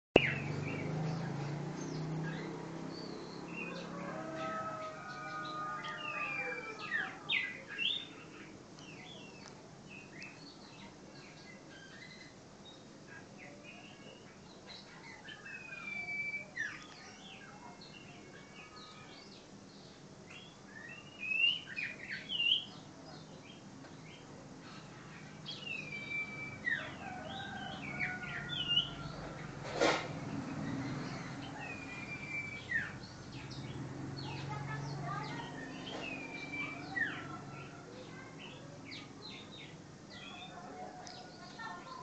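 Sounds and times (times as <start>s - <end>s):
bird singing whistled chirps: 15.5s - 17.0s, 20.4s - 22.7s, 25.6s - 26.9s, 31.6s - 33.0s, 36.0s - 37.2s.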